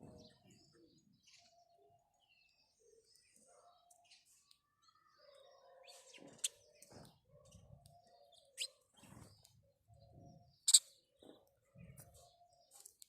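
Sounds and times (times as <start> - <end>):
sparrows chirping: 0.0 - 13.0.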